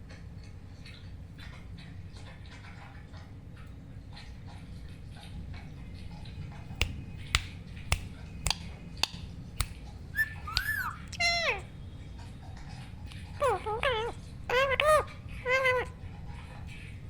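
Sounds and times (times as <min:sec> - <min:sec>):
parakeet whistled calls: 0:10.2 - 0:11.6.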